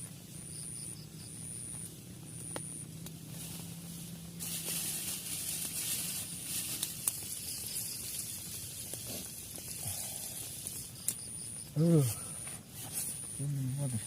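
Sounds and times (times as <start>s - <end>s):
rain hissing: 3.2s - 14.0s.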